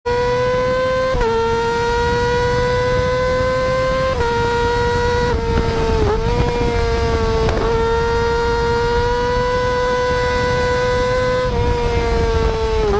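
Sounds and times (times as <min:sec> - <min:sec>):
motorcycle engine high revs whine: 0:00.1 - 0:12.9.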